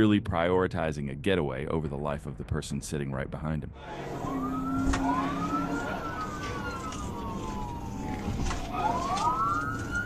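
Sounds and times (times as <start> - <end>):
police siren wailing: 3.8 - 10.0
road noise: 3.8 - 10.0.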